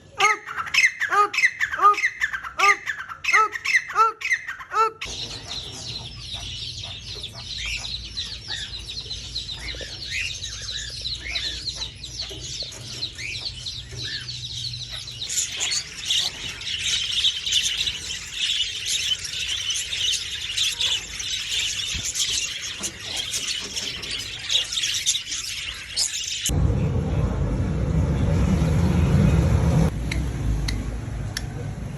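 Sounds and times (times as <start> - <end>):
chorus of small birds chirping: 0.0 - 26.6
low hum: 26.5 - 31.9.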